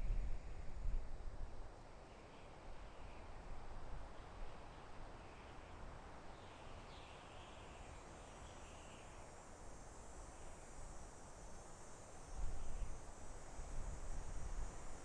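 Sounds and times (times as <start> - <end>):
soft wind in forest: 0.0 - 15.0.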